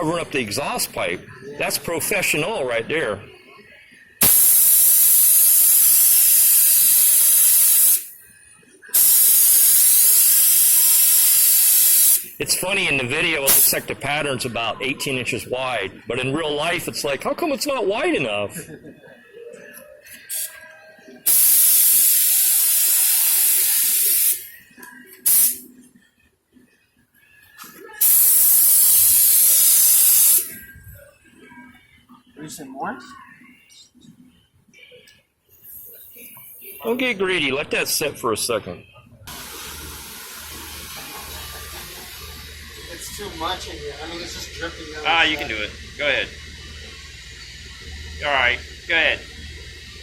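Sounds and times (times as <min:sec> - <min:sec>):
spray gun hissing: 0:04.2 - 0:08.1, 0:09.0 - 0:12.4, 0:13.5 - 0:13.9, 0:21.3 - 0:24.5, 0:25.2 - 0:25.6, 0:28.0 - 0:30.5, 0:39.3 - 0:44.2.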